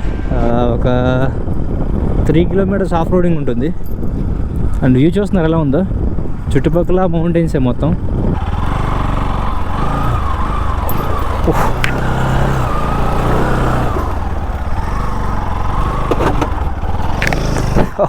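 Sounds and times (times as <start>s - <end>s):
motorcycle engine revving: 7.5s - 18.0s
sharp knocks from bumps: 15.8s - 18.0s.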